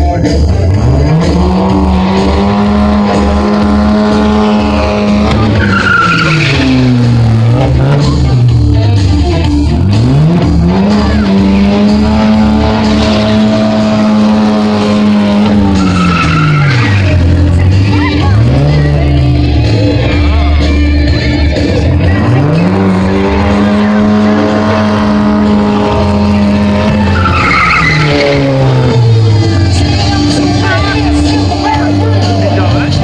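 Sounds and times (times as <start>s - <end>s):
car engine revving: 0.0s - 33.0s
tyres squealing: 1.0s - 8.3s, 10.8s - 19.2s, 22.1s - 31.7s.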